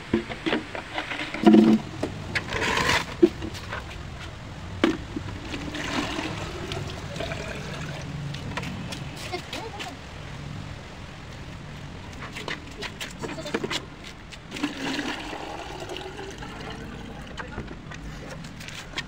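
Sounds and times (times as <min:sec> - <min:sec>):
water pouring and splashing: 0:05.2 - 0:09.9, 0:14.4 - 0:19.0.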